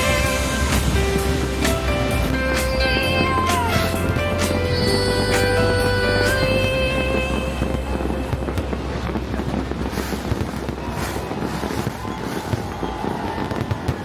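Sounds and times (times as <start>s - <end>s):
firework crackling pops: 0.0s - 14.0s
loud firework bangs: 0.0s - 14.0s.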